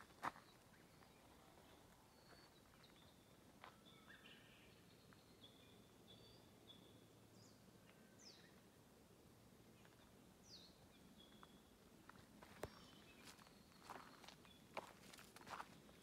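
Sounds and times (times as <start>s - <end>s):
faint whistled bird calls: 12.7s - 14.4s.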